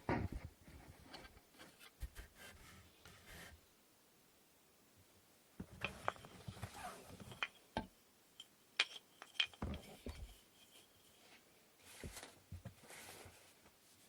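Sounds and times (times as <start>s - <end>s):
wooden parts knocking and clicking: 8.8s - 10.4s.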